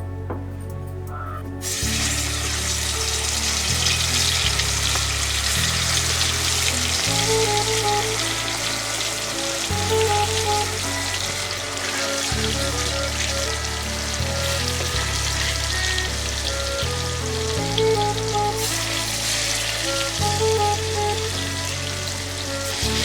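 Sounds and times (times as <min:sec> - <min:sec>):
background music with bass and melody: 0:00.0 - 0:23.0
food sizzling in a pan: 0:01.6 - 0:23.0.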